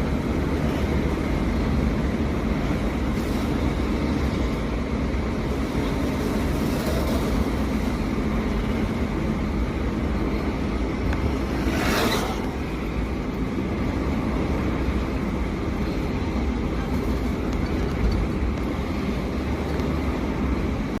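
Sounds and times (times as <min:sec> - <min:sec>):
vehicle road and engine rumble: 0:00.0 - 0:21.0
rushing whoosh: 0:10.9 - 0:13.3.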